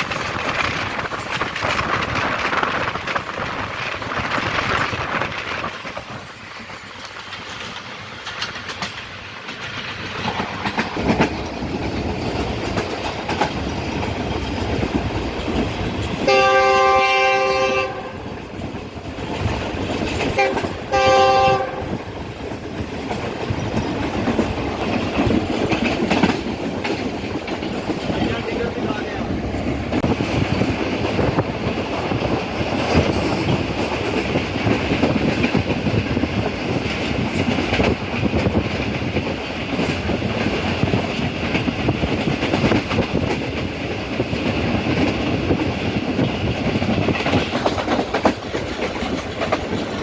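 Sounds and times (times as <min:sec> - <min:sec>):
train rumble and rail clatter: 0:00.0 - 0:50.0
locomotive horn blast: 0:16.3 - 0:18.2, 0:20.4 - 0:22.0.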